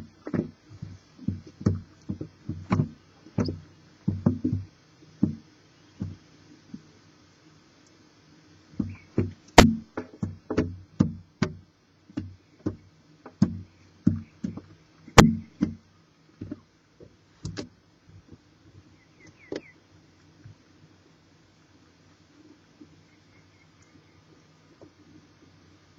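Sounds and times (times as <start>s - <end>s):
knocks against wooden nest box: 8.8s - 11.6s, 12.2s - 15.8s.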